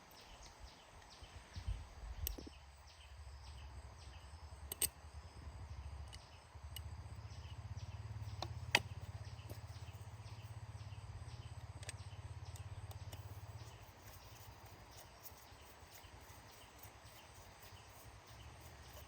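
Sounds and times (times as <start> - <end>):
motorbike engine idling: 3.4 - 19.0
sharp click: 4.7 - 5.0.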